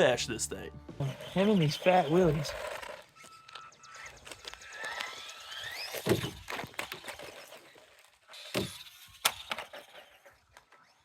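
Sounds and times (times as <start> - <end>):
electric motor whining: 0.9 - 11.0
toy truck hitting the ground: 4.2 - 10.8.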